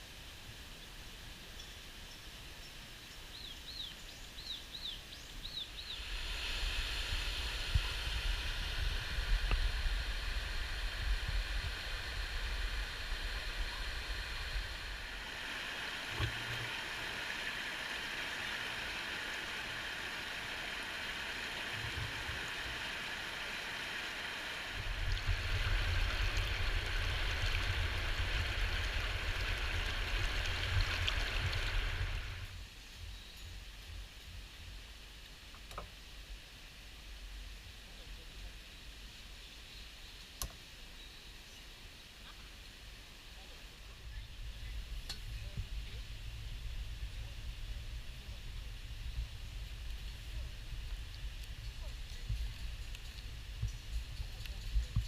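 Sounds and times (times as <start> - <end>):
flowing river water: 0.0 - 32.7
wind rumble on microphone: 4.4 - 16.8, 24.7 - 35.0, 43.8 - 55.0.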